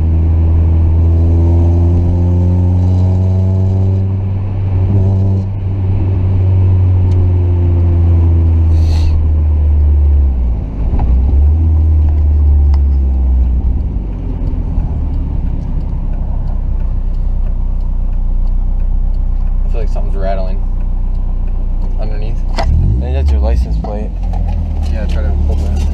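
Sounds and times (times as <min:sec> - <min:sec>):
car engine drone: 0:00.0 - 0:25.9
road noise: 0:00.0 - 0:25.9.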